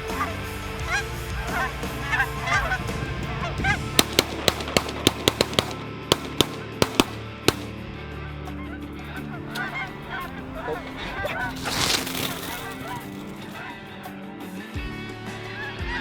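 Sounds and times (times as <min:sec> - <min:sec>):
geese honking: 0:00.0 - 0:07.7, 0:09.5 - 0:13.7
shotgun blasts: 0:02.1 - 0:08.0, 0:09.5 - 0:13.7.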